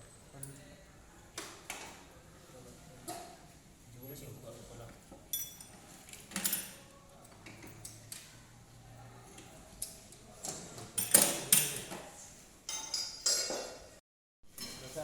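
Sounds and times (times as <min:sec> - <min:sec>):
metal tools clinking and knocking: 0:05.3 - 0:06.8, 0:11.0 - 0:12.0, 0:12.7 - 0:13.8.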